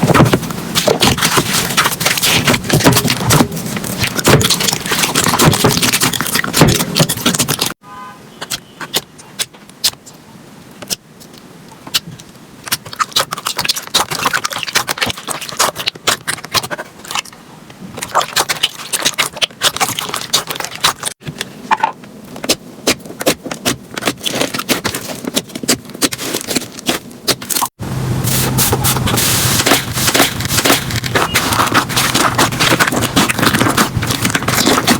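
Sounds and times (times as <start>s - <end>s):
low steady hum: 27.8s - 34.9s.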